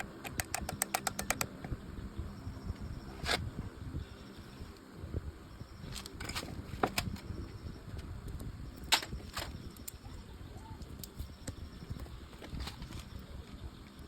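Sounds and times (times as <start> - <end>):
tools clicking and tapping: 0.0 - 1.8.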